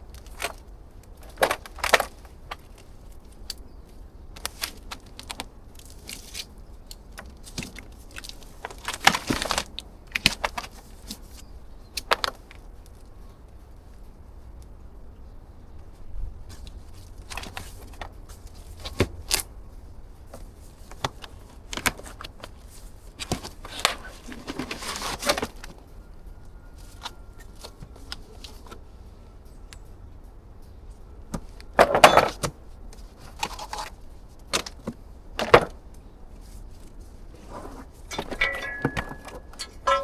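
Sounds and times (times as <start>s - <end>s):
metal clatter: 38.1s - 40.0s
metallic clinks and knocks: 38.1s - 40.0s.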